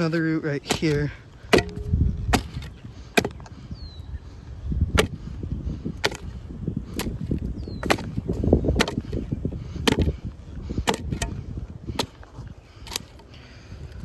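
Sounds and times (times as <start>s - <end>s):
shovel chopping into root: 0.6s - 3.4s, 6.0s - 6.3s, 7.8s - 9.2s, 9.8s - 10.1s, 10.8s - 12.2s.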